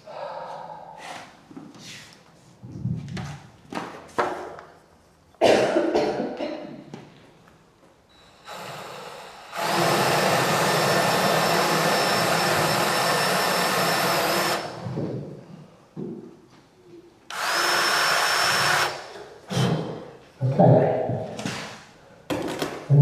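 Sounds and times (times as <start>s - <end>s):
electric drill boring wood: 8.2s - 15.0s, 17.3s - 19.7s.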